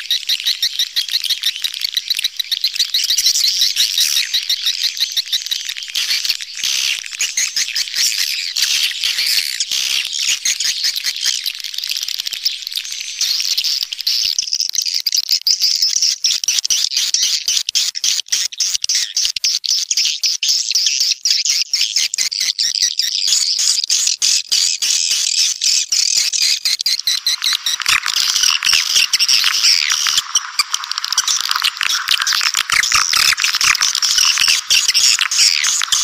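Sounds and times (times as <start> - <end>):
swiftlets twittering: 26.2 - 36.0.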